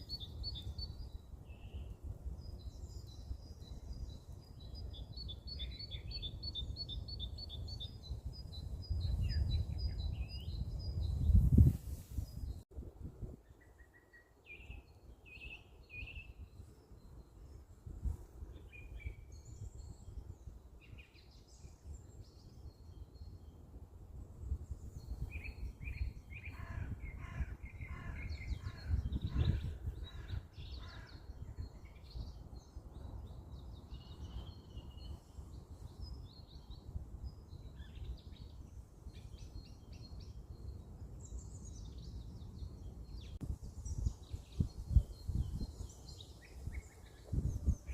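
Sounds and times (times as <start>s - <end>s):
wind rumble on microphone: 0.0s - 47.9s
wild birds chirping and calling: 26.3s - 31.4s.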